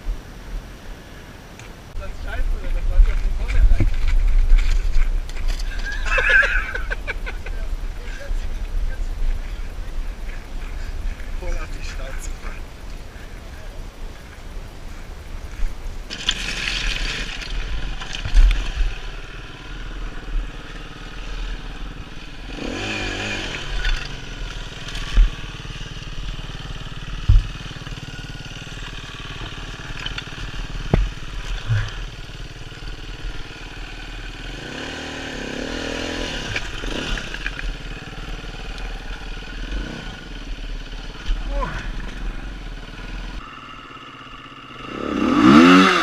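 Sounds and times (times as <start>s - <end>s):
dirt bike engine revving: 16.1s - 46.0s.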